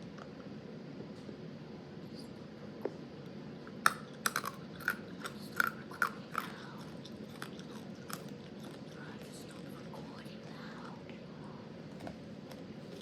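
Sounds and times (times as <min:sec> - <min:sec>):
candy crunching while chewing: 0:03.8 - 0:10.6.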